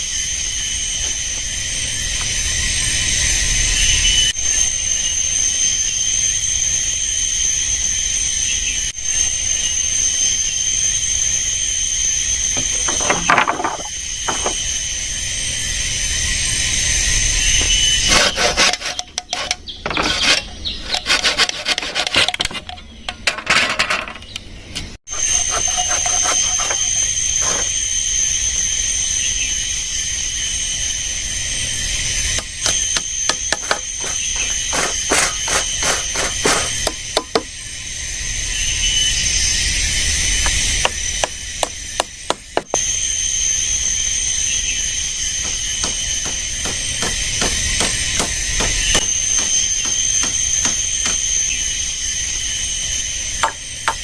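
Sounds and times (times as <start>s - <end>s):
shrill insect drone: 0.0s - 54.0s
irregular scraping and knocking: 18.2s - 23.9s.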